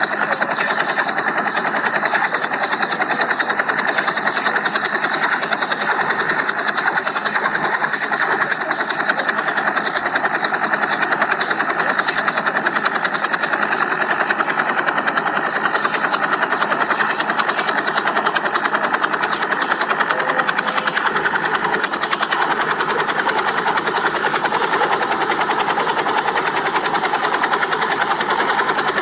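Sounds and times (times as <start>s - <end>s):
toy helicopter motor buzzing: 0.0s - 29.0s.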